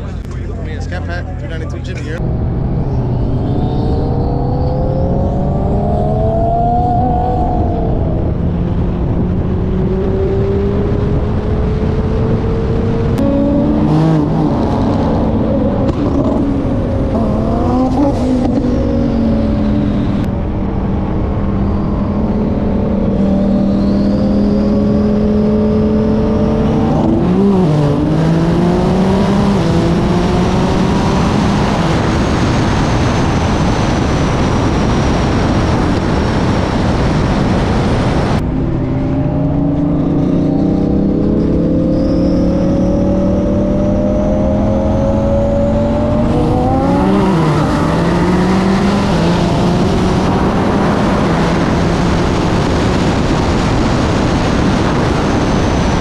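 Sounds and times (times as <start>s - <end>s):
car engine at full throttle: 0.0s - 56.0s
heavy wind rush: 0.0s - 56.0s.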